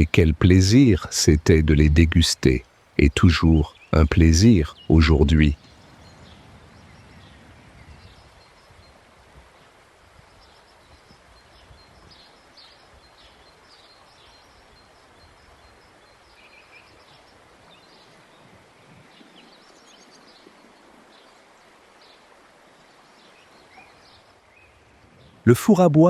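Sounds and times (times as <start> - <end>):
steady hiss: 0.0 - 5.5
small birds chirping: 0.0 - 9.0, 9.6 - 26.0.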